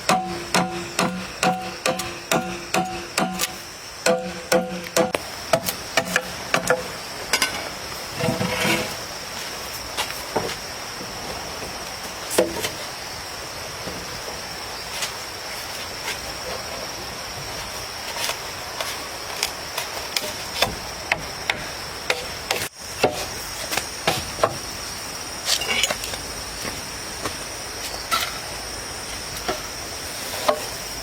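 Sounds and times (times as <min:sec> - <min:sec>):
sharp knocks: 0:00.0 - 0:06.8
high insect drone: 0:00.0 - 0:31.0.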